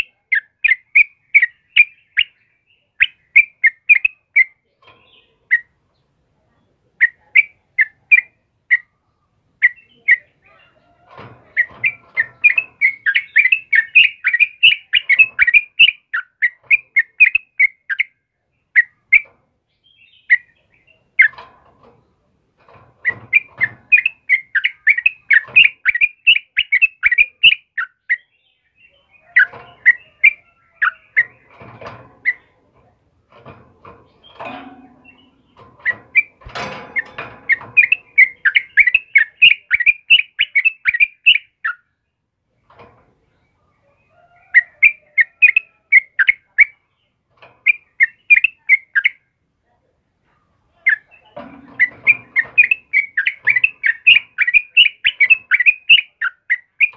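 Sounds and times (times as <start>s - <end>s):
bird chirping: 0.0s - 49.4s, 50.3s - 56.9s
faint low knocks: 31.2s - 38.9s.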